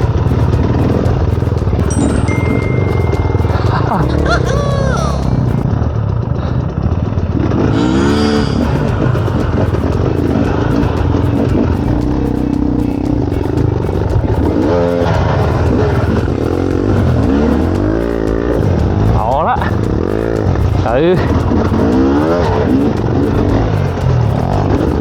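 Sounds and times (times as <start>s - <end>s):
dirt bike engine revving: 6.5s - 25.0s.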